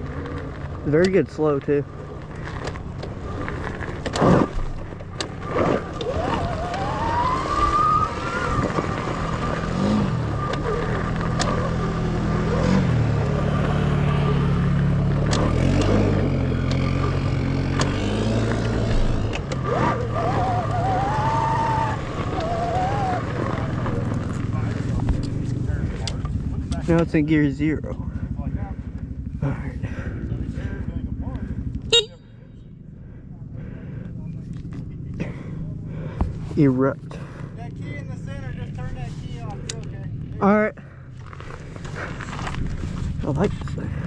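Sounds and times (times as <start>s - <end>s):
wind and tyre rumble: 0.0s - 44.0s
electric motorbike motor whining: 2.2s - 24.4s.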